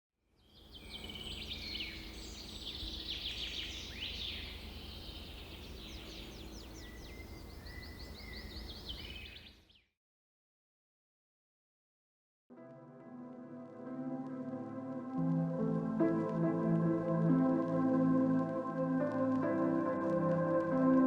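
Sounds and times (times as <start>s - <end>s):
birds chirping and trilling: 0.5s - 9.9s.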